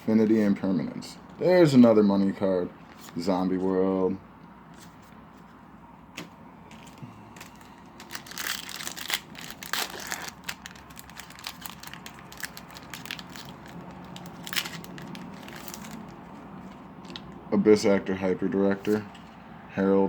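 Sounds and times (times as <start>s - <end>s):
foil wrappers crinkling and tearing: 6.7s - 17.3s.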